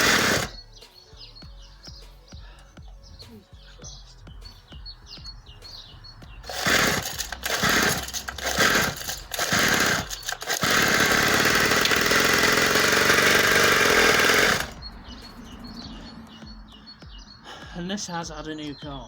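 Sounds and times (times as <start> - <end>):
two-stroke engine sputtering: 0.0 - 0.6, 6.2 - 16.8.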